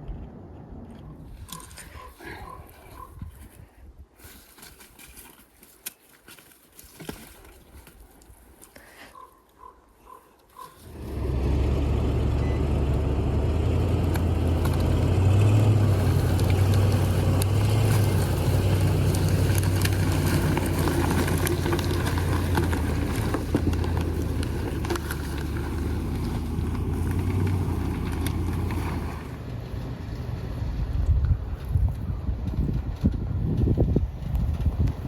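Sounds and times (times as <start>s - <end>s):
car engine running under load: 10.8s - 33.5s
clicks and crackles: 13.9s - 29.4s.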